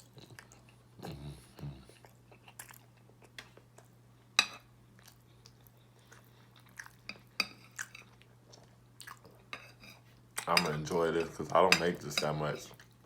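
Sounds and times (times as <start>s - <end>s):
chewing and mouth smacks: 0.0s - 4.0s, 4.9s - 9.5s
low steady hum: 0.0s - 13.0s.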